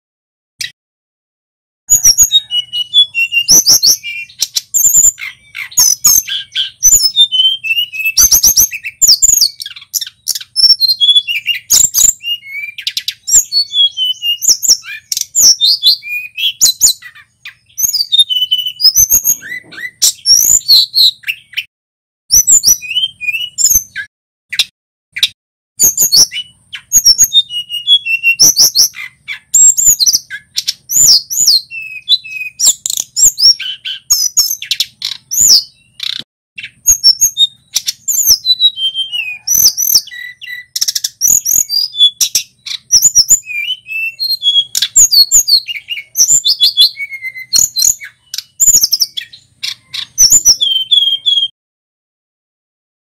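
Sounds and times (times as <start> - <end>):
bird singing high chirps: 1.9 - 21.7, 22.3 - 51.6.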